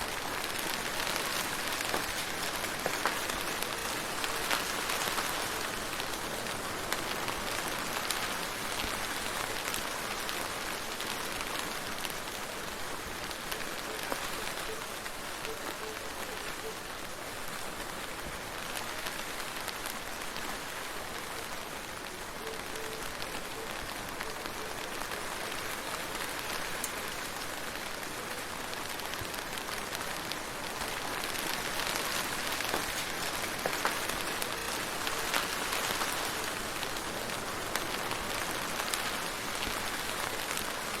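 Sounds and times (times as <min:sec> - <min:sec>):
steady rain falling: 0:00.0 - 0:41.0
raindrops ticking: 0:21.2 - 0:41.0.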